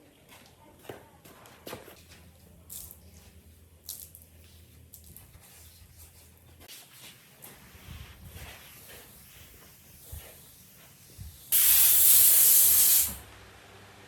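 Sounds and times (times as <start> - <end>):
loud hissing blast of air: 11.5 - 13.2.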